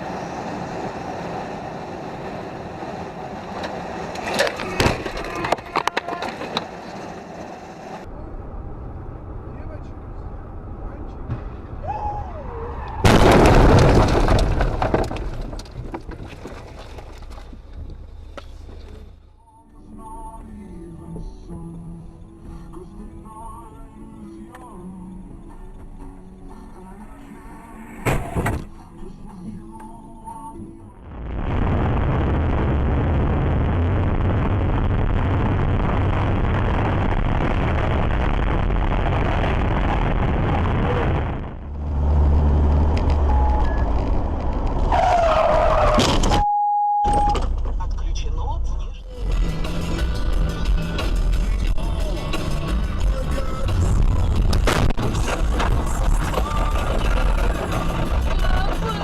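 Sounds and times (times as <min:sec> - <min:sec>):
vehicle crash crunching: 0:03.4 - 0:08.0, 0:12.8 - 0:19.3, 0:33.7 - 0:46.5, 0:49.2 - 0:59.0
debris clicking and rattling: 0:13.1 - 0:17.9.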